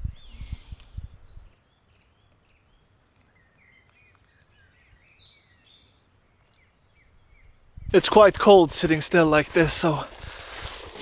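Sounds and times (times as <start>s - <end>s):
songbirds singing: 0.0s - 8.0s.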